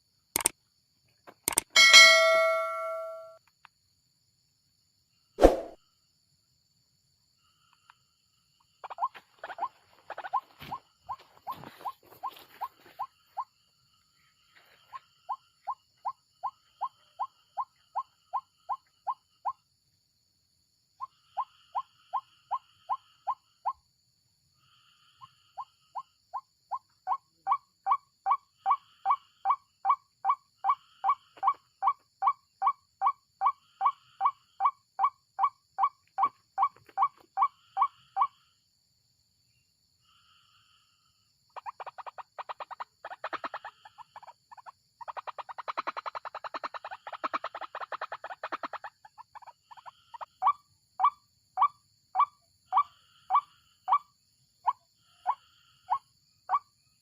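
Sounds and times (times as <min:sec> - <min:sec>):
rapid chattering bird calls: 0:08.8 - 0:13.5, 0:41.6 - 0:54.0.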